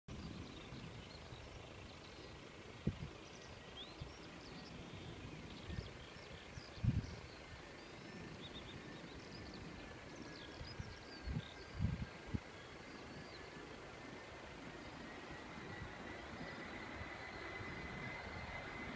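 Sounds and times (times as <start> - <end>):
outdoor background noise: 0.1 - 18.9
small birds chirping: 0.1 - 18.9.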